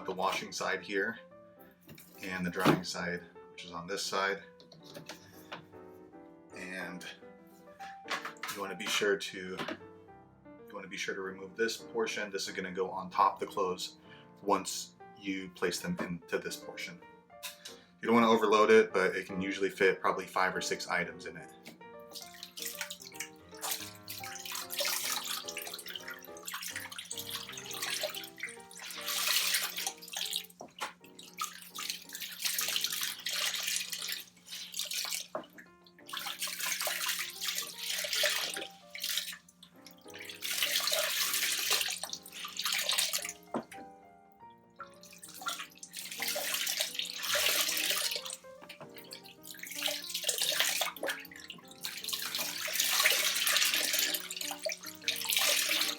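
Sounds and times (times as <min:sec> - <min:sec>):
water sloshing in washing machine: 0:00.0 - 0:00.8, 0:01.8 - 0:03.1, 0:04.0 - 0:05.7, 0:07.8 - 0:09.9, 0:21.7 - 0:43.9, 0:44.8 - 0:55.9
background music: 0:00.0 - 0:55.9.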